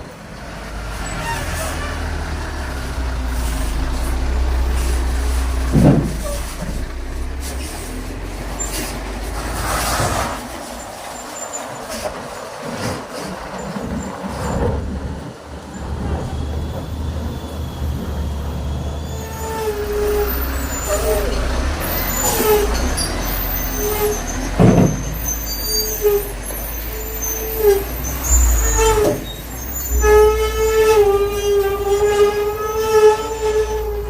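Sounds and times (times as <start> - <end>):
diesel truck engines rumbling: 0.0 - 34.0
air brakes hissing: 16.3 - 34.0.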